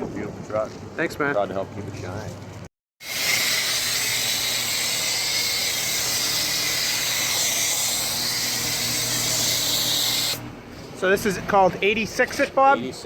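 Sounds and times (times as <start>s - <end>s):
spray wand hissing: 3.0s - 10.4s.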